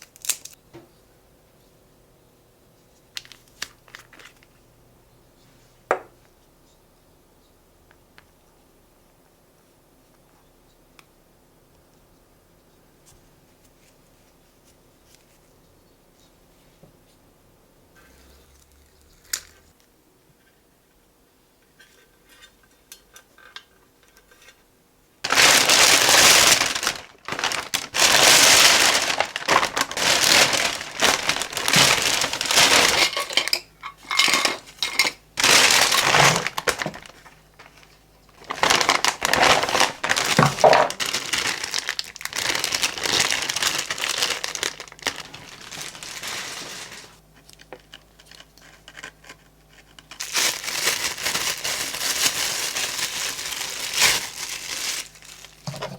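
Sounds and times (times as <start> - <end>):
packaging crinkling and rustling: 3.1 - 4.6, 25.2 - 55.9.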